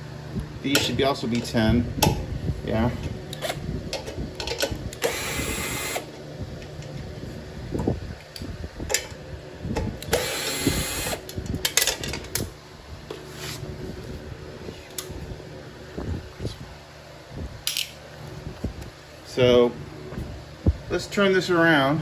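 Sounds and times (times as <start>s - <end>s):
clinks of tools and metal parts: 3.4s - 5.1s, 11.4s - 12.4s, 17.7s - 18.0s
power driver spinning nuts: 4.9s - 6.1s, 10.0s - 11.6s.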